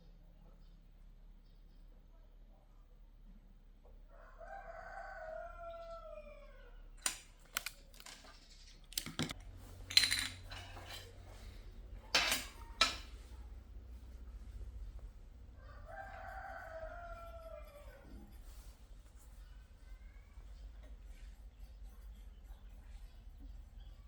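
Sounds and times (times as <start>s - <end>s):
rooster crowing: 4.1s - 6.9s, 15.5s - 18.4s
sharp clicks and clatters: 7.0s - 10.7s.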